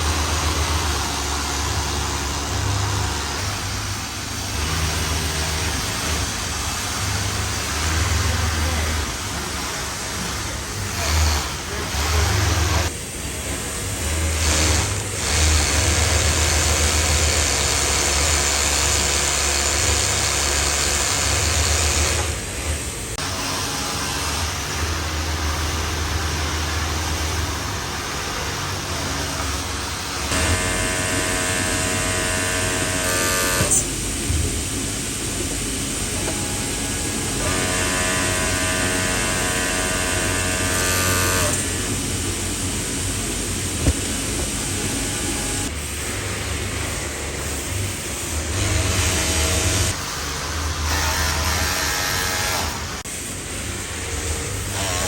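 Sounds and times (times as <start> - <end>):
humming whine: 28.3 - 50.0.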